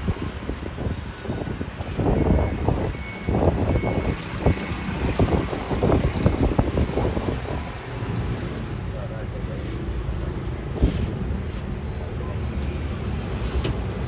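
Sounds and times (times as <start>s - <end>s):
traffic noise: 0.0s - 14.0s
high electronic beep: 2.2s - 7.2s.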